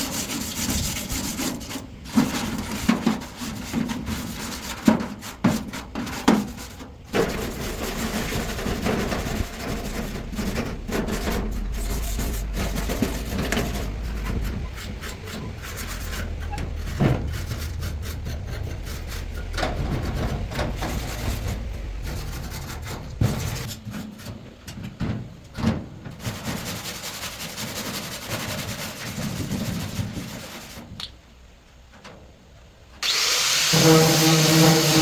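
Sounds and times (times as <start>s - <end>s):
scraping and rubbing strokes: 0.0s - 24.6s, 26.2s - 31.0s, 33.7s - 35.0s
low hum: 7.1s - 23.9s.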